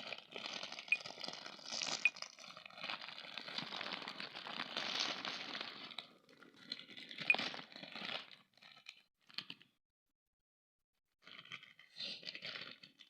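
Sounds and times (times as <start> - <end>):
plastic wrapper crinkling: 0.0 - 9.4.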